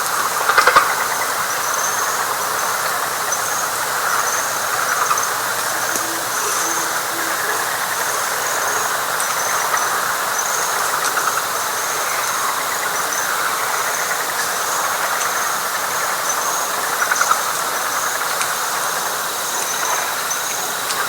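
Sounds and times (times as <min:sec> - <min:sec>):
frogs and insects calling: 0:00.0 - 0:21.0
short high trills: 0:05.7 - 0:08.0.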